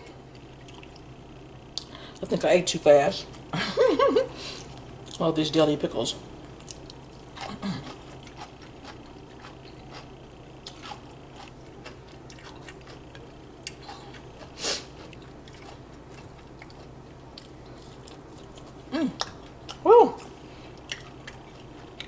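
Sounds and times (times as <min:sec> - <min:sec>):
faint steady hum: 0:00.0 - 0:22.0
person chewing and smacking: 0:00.3 - 0:01.1, 0:06.6 - 0:22.0.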